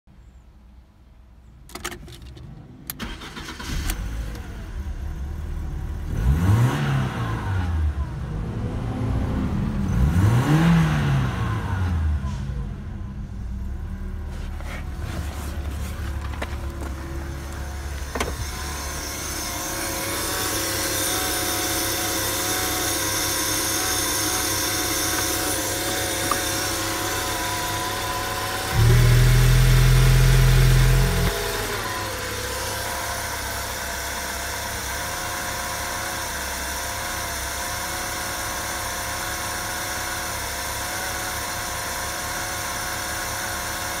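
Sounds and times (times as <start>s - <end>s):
car engine idling: 12.6s - 44.0s.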